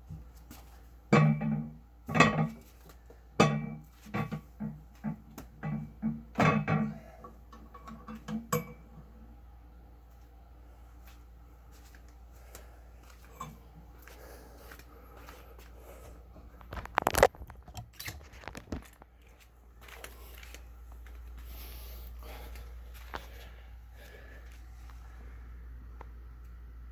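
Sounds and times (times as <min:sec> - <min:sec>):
clicks and rustles: 0:16.6 - 0:21.4.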